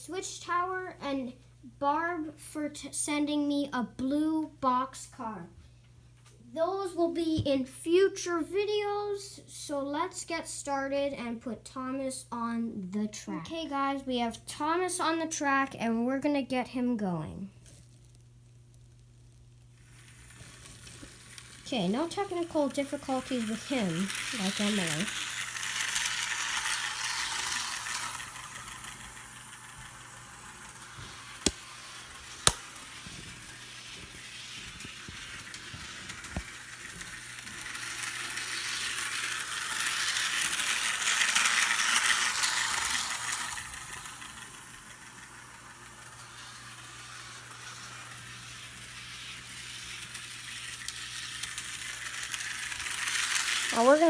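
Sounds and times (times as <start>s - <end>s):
model train motor rattling: 19.8s - 54.0s.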